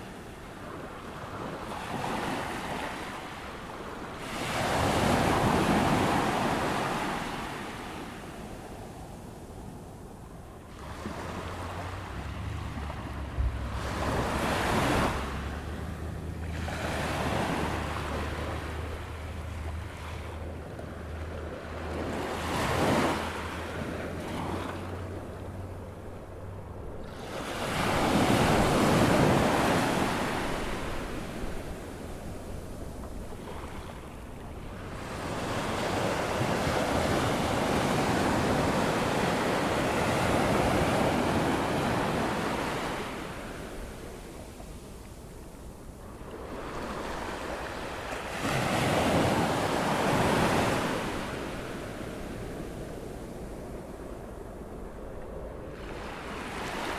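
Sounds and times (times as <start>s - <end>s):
ocean surf breaking on beach: 0.0s - 56.9s
low steady hum: 10.8s - 21.8s.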